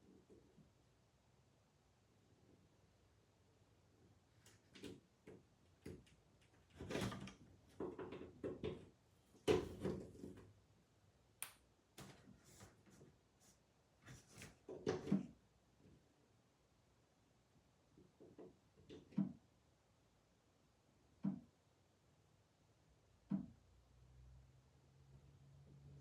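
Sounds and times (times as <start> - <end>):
irregular knocks and clunks: 6.8 - 10.4.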